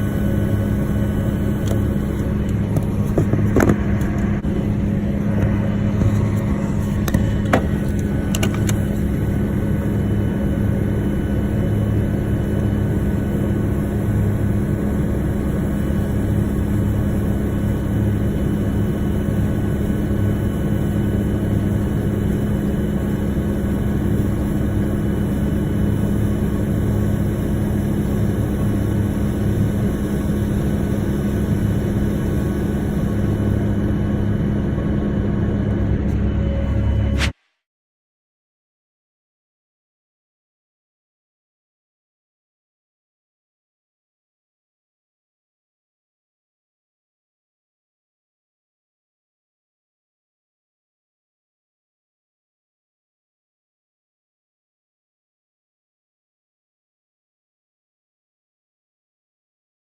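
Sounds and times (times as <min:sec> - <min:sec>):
farm machinery engine humming: 0:00.0 - 0:37.2.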